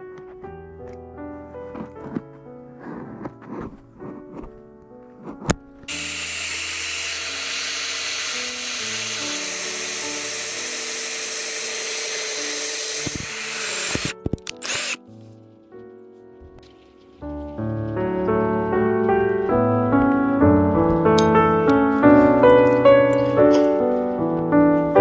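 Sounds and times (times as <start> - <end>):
background music: 0.0 - 25.0
power tool running: 5.9 - 15.0.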